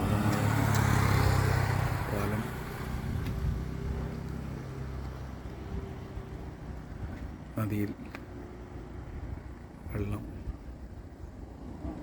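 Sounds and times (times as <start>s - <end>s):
vehicle engine passing by: 0.0s - 6.6s.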